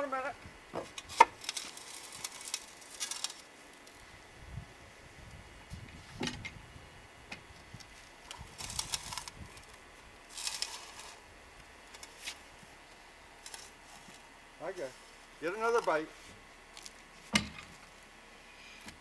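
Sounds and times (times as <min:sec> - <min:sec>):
scraping rustles: 0:00.8 - 0:04.1, 0:07.5 - 0:18.0.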